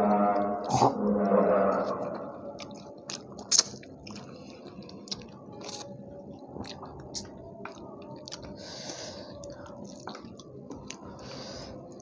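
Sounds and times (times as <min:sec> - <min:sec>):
chewing with wet mouth clicks: 0:02.5 - 0:11.3.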